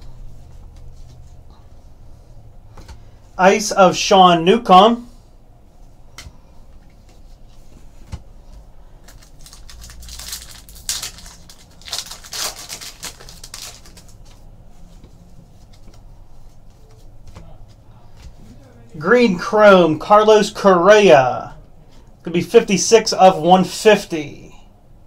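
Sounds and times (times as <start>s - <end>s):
foil wrappers crinkling: 9.0s - 14.4s.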